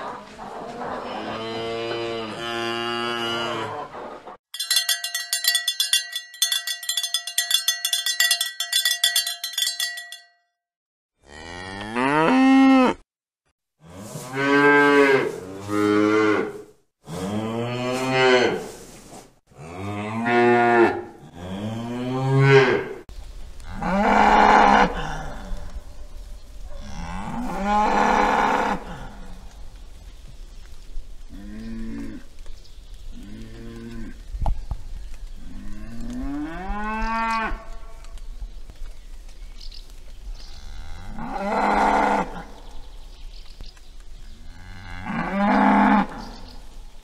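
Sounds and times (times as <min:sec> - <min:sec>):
cows mooing: 0:00.7 - 0:04.0, 0:11.2 - 0:13.0, 0:40.6 - 0:42.5, 0:44.5 - 0:46.3
bells clanging: 0:04.6 - 0:10.4.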